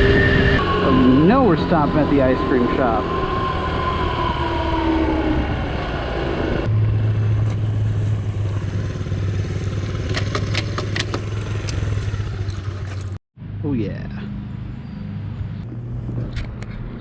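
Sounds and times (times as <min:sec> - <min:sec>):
motorbike engine slowing to idle: 0:07.2 - 0:13.2.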